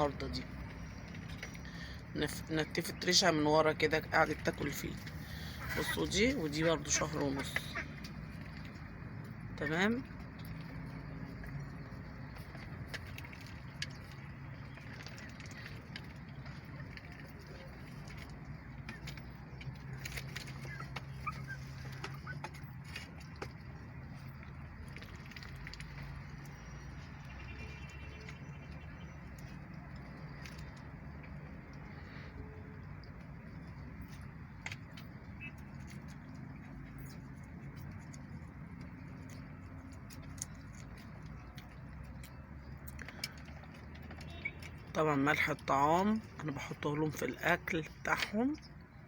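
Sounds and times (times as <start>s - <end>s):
poultry pecking at feed: 6.7s - 44.9s.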